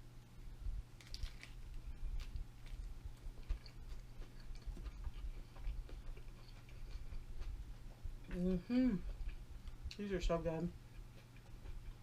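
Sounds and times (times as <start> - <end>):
close chewing with wet mouth clicks: 3.0 - 8.4, 10.8 - 12.0.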